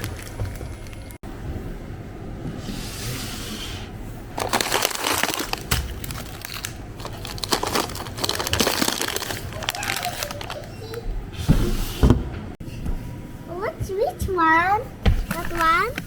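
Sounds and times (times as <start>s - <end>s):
crinkling and rustling: 0.0s - 1.2s, 4.4s - 12.6s, 15.1s - 16.0s.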